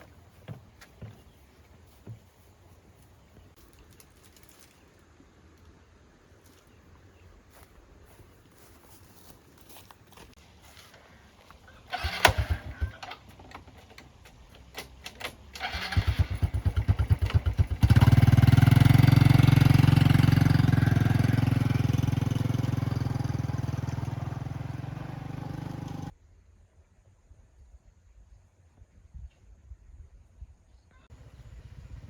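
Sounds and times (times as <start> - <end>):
starter cranking diesel engine: 11.8 - 26.1
loud engine running: 16.0 - 26.1.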